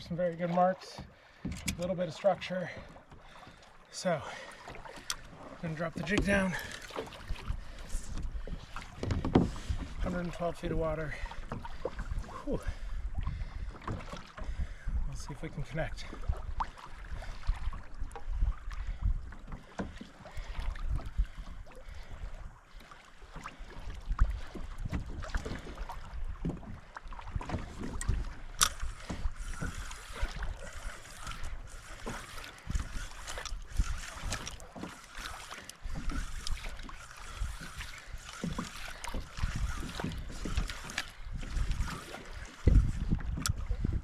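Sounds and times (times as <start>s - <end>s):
water lapping against kayak hull: 0.0s - 44.0s
wind gusting on microphone: 37.3s - 44.0s.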